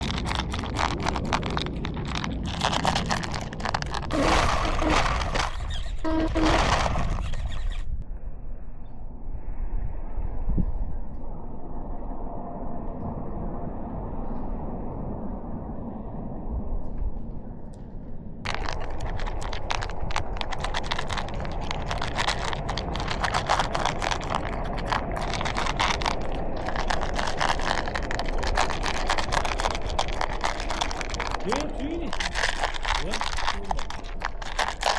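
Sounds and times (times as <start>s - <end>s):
toy car motor and wheels: 0.0s - 7.9s, 18.5s - 34.9s
low rumble: 0.0s - 34.9s.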